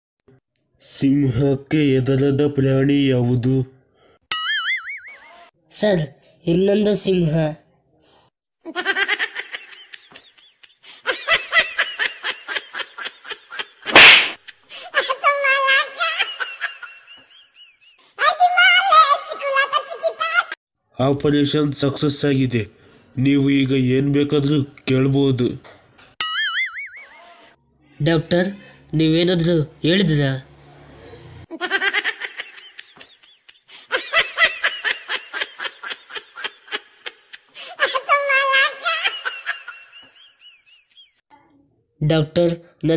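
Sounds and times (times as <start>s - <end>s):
high-pitched laughter: 14.9s - 20.6s, 31.5s - 41.2s.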